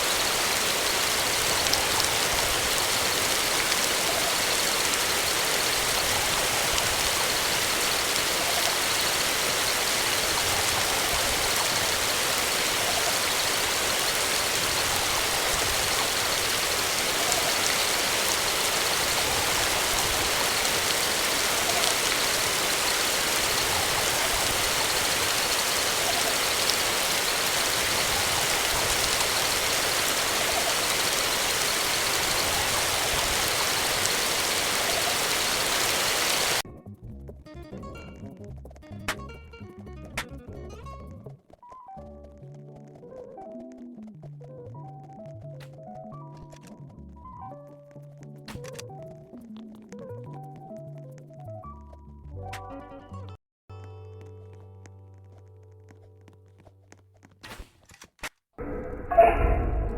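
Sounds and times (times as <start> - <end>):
steady hiss: 0.0 - 36.6.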